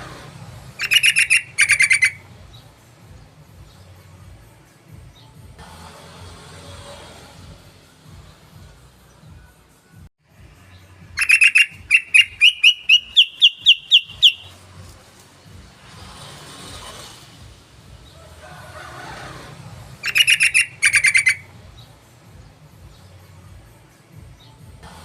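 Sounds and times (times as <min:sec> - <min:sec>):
bird chattering and calling: 0:00.8 - 0:02.2, 0:11.2 - 0:14.6, 0:20.0 - 0:21.5
sharp clear bird notes: 0:11.2 - 0:14.5.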